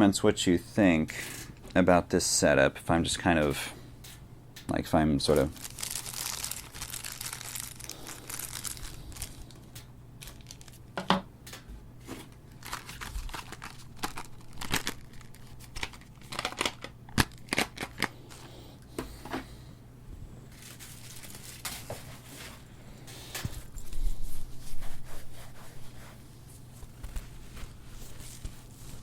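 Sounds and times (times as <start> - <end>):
packaging crinkling and rustling: 5.2 - 11.0, 12.0 - 18.5, 20.5 - 22.7, 26.5 - 29.0.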